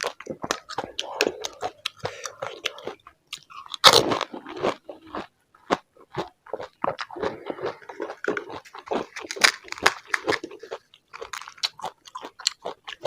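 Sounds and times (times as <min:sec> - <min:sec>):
crunching and chewing crisp shells: 0:00.0 - 0:13.0.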